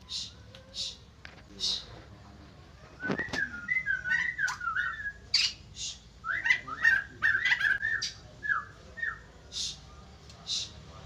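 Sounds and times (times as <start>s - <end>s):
bird harsh calls: 2.8s - 10.8s
bird whistled song: 3.0s - 9.8s.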